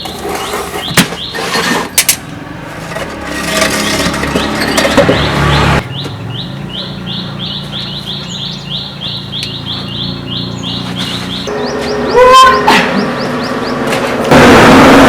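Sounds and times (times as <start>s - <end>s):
small bird chirping: 4.7s - 13.9s
loud noisy sound: 11.5s - 15.0s.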